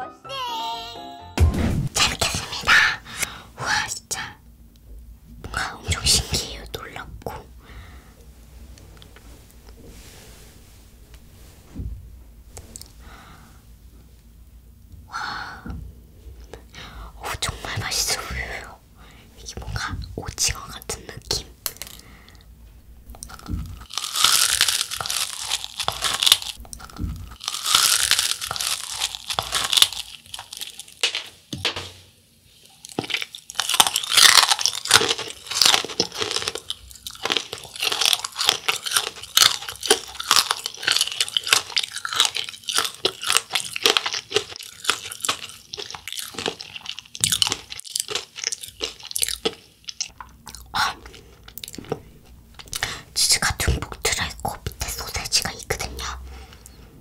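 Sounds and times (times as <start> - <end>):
crunchy food being chewed: 20.5 - 22.5, 23.1 - 31.1, 32.6 - 56.1.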